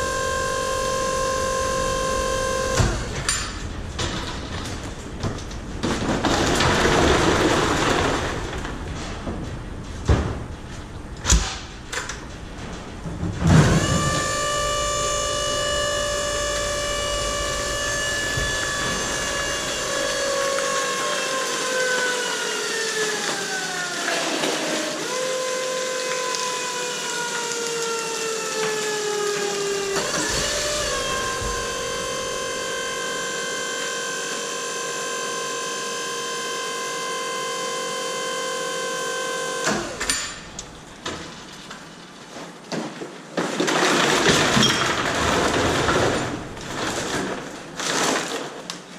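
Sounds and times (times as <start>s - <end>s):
hydraulic pump motor whine: 0.0s - 5.2s, 12.9s - 41.1s.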